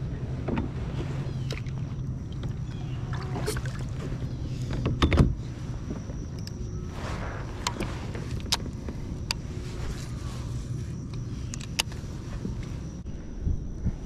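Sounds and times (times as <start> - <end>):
low steady hum: 0.0 - 14.0
handling clicks and rubs: 7.4 - 13.0.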